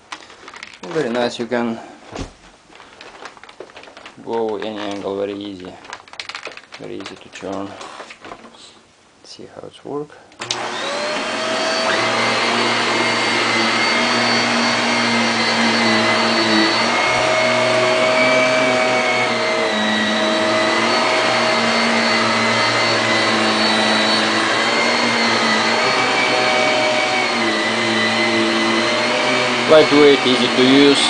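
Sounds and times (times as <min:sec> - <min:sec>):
vacuum cleaner motor whining: 0:10.4 - 0:31.0.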